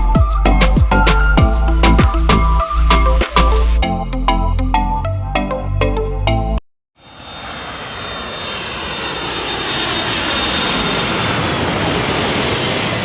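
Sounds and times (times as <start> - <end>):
jet engines rushing and whining: 7.0 - 13.0.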